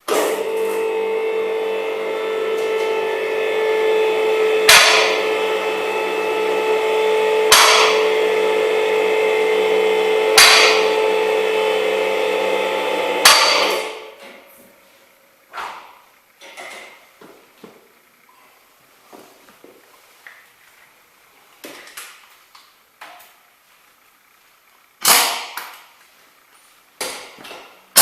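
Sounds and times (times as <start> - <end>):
steady humming tone: 0.1 - 22.8
sharp knocks: 4.7 - 5.3, 7.5 - 8.1, 10.4 - 11.0, 13.2 - 13.9.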